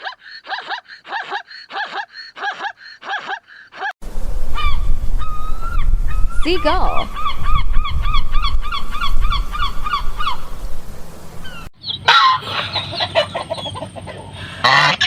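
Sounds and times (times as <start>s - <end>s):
seagull yelping calls: 4.6s - 10.5s
many birds calling: 4.6s - 15.0s.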